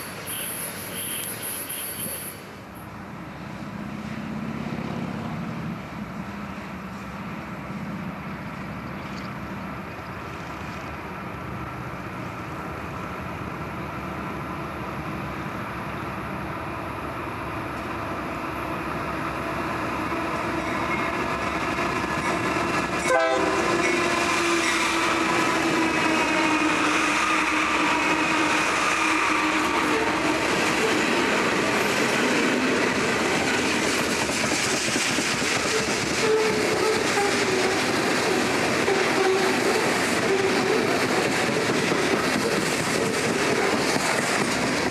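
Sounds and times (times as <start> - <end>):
train passing: 0.0 - 44.9
train horn: 0.3 - 2.3, 23.0 - 30.4, 36.2 - 40.9
wheels clattering over rail joints: 31.7 - 44.9.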